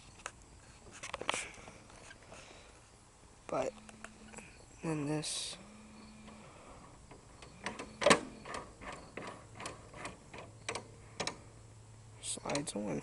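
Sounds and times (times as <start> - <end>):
light clicks and knocks: 12.4 - 12.9.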